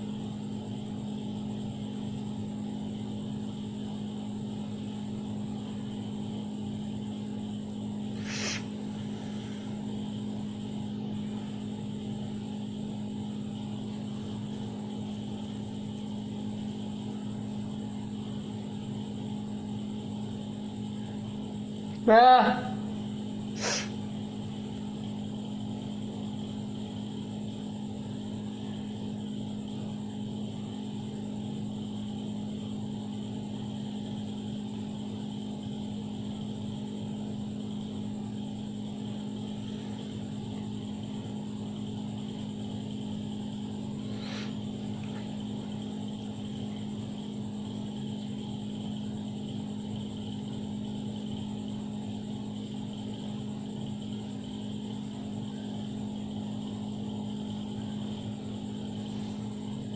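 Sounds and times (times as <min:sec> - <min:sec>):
small motor humming: 0:08.0 - 0:12.4, 0:23.5 - 0:24.0, 0:43.9 - 0:47.4.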